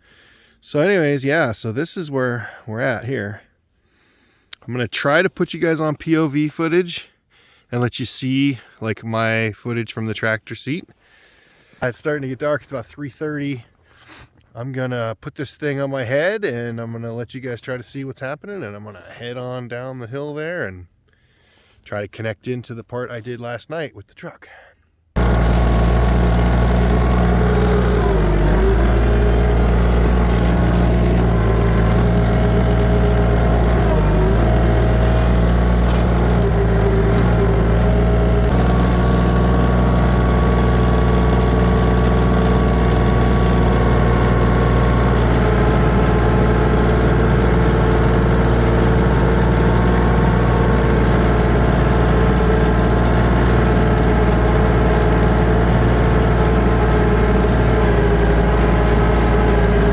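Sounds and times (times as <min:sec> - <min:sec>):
tractor engine running: 0:25.2 - 0:59.9.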